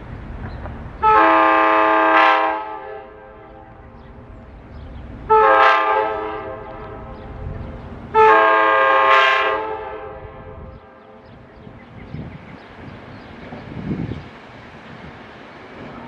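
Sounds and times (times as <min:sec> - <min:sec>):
low train rumble: 0:00.0 - 0:16.0
train horn blasts: 0:01.0 - 0:04.0, 0:05.3 - 0:11.2.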